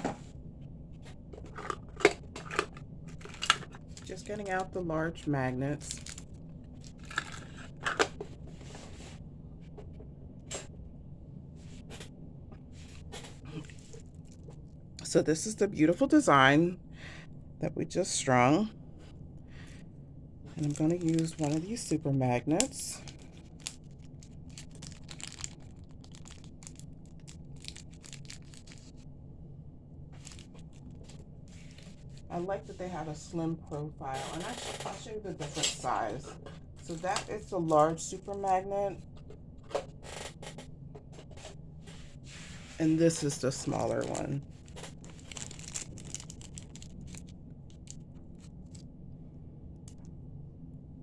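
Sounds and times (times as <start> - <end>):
faint low hum: 0.0 - 51.0
packaging rustling: 1.4 - 4.8, 5.8 - 9.0, 20.5 - 29.0, 30.2 - 32.3, 36.8 - 38.7, 42.4 - 48.8.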